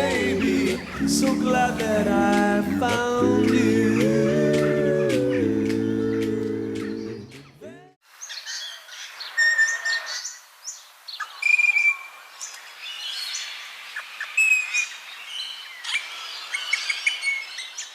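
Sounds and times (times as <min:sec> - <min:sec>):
music: 0:00.0 - 0:07.3
birds chirping and whistling: 0:00.0 - 0:07.6.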